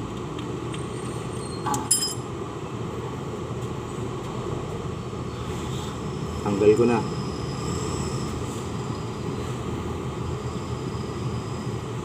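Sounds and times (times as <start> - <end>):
sharp metallic clink: 1.7 - 2.3.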